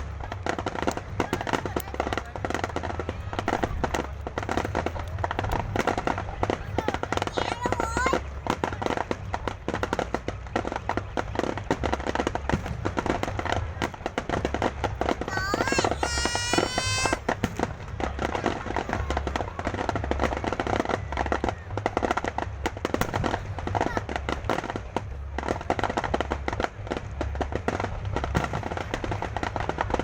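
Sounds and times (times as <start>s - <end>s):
fireworks crackling and banging: 0.0s - 30.0s
firework whistle: 15.2s - 24.8s.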